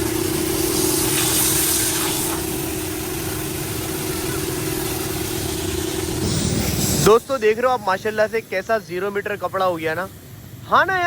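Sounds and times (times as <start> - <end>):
pressure washer motor hum: 0.0 - 8.6
hiss of spraying water: 0.0 - 10.7.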